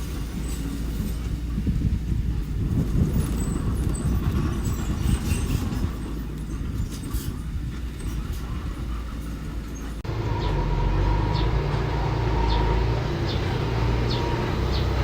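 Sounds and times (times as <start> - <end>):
metallic clanking and scraping: 0.0 - 10.5
diesel engine rumbling: 0.0 - 15.0.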